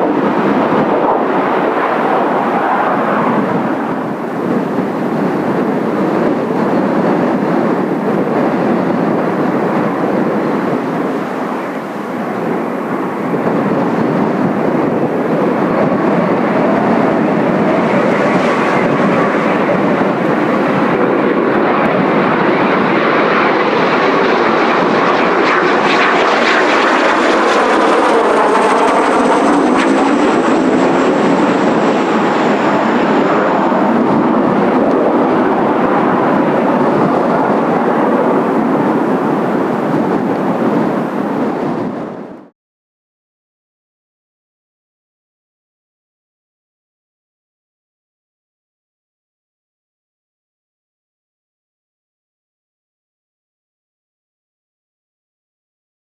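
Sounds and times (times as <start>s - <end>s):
jet engines running: 0.0s - 42.5s
high whine falling in pitch: 10.0s - 39.3s.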